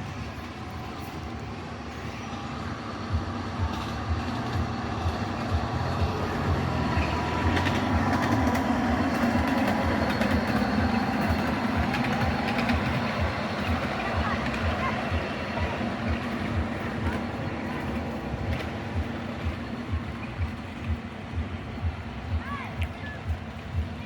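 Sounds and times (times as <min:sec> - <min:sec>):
miniature train rumbling on track: 0:00.0 - 0:24.0
sharp track clicks: 0:03.2 - 0:24.0.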